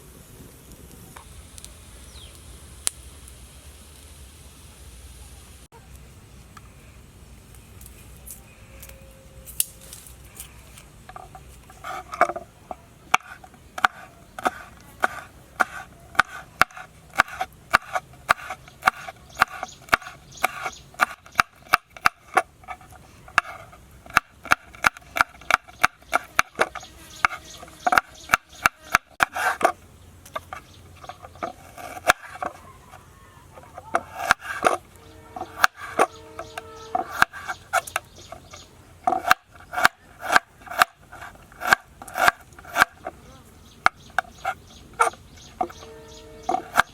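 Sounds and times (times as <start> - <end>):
knife chopping on wooden board: 13.1 - 22.5, 34.0 - 34.8, 35.4 - 36.2, 37.0 - 37.9, 39.1 - 43.1.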